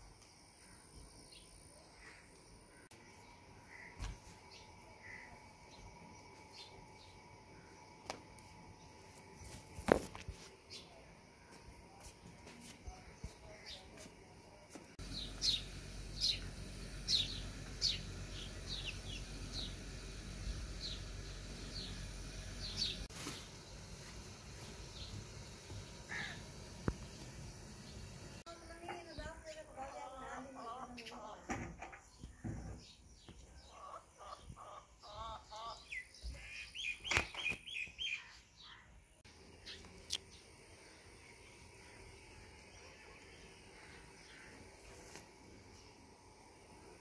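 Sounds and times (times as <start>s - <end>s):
small birds chirping: 0.2s - 14.2s, 15.0s - 47.0s
bird chirping: 15.0s - 19.8s, 32.0s - 44.8s
low steady rumble: 15.0s - 23.1s.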